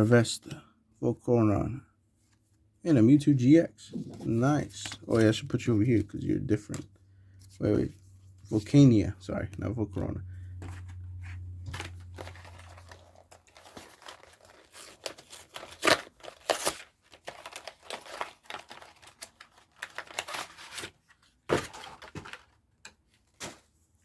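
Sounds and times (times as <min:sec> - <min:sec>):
wrapper tearing and crinkling: 0:11.7 - 0:22.6.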